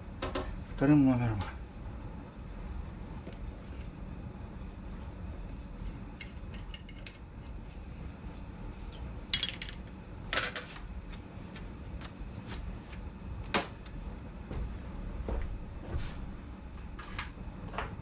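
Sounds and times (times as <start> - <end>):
metal tools clinking and scraping: 8.9 - 10.8.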